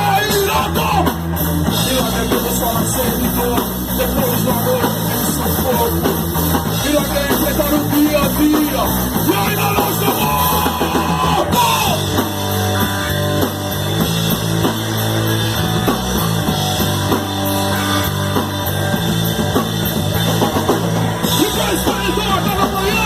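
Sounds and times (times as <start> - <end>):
live punk rock band playing: 0.0 - 23.0.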